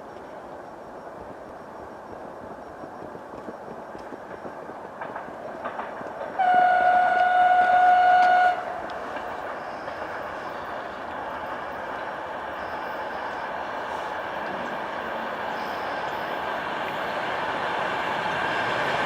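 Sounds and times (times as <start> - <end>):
wheels clicking on rails: 1.0 - 19.0
electric train running: 2.5 - 19.0
train horn: 6.4 - 8.8.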